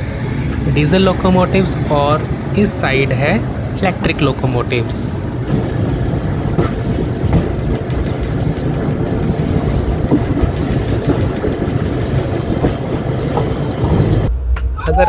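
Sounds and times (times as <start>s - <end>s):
train rumbling on rails: 0.0s - 15.0s
wheels clicking over rail joints: 5.3s - 14.3s.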